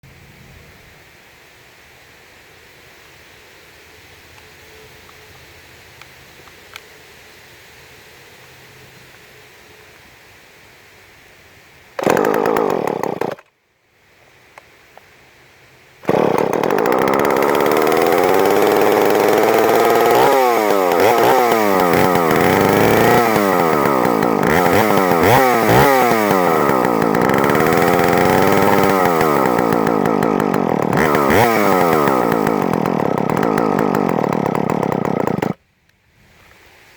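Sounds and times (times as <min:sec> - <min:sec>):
chainsaw revving: 0:12.0 - 0:13.5, 0:16.0 - 0:35.6.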